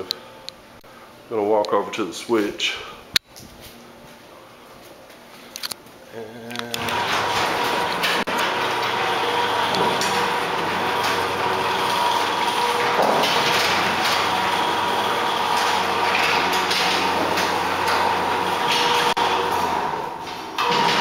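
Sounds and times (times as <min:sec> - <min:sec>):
garage door opener running: 0:06.6 - 0:21.0
door moving along tracks: 0:06.7 - 0:21.0.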